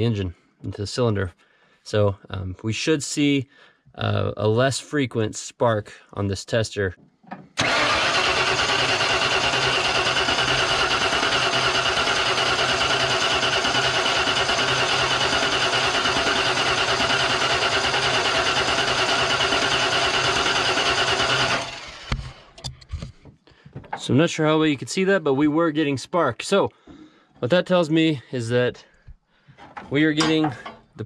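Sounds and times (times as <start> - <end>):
starter motor cranking: 7.6 - 22.7.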